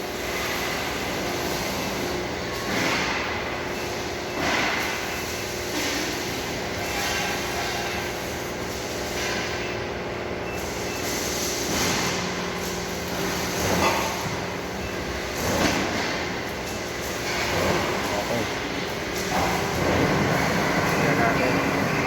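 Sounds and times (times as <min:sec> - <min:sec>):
cutting machine hum: 0:17.4 - 0:22.0.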